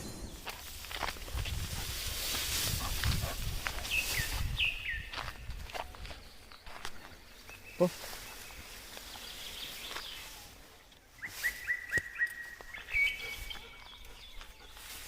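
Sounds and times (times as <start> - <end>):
bird chirping: 3.3 - 15.0.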